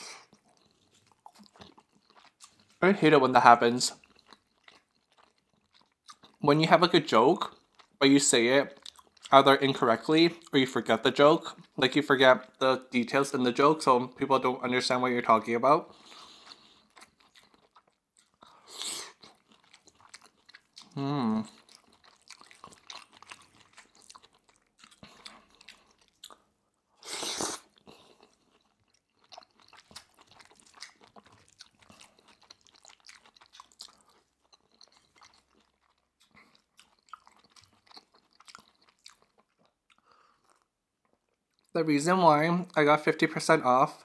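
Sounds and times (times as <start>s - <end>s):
chewing and biting food: 0.0s - 2.8s, 3.9s - 6.4s, 7.4s - 8.0s, 8.6s - 9.5s, 15.9s - 41.8s
person humming mmm: 20.9s - 21.6s.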